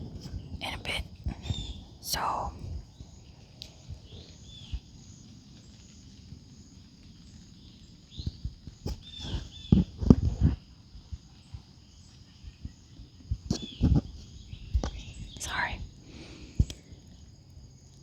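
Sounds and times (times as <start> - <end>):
birds chirping: 0.1 - 6.0, 11.3 - 17.4.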